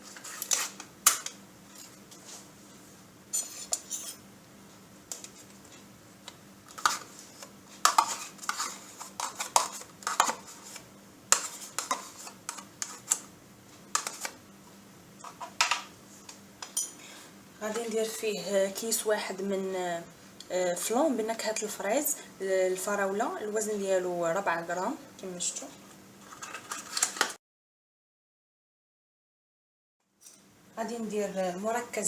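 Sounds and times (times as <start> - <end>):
utensil scraping against a bowl: 3.4 - 4.2, 6.7 - 13.2.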